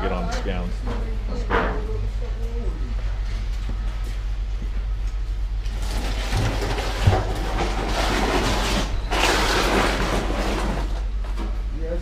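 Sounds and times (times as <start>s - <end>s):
rattling rolling noise: 5.7s - 11.7s.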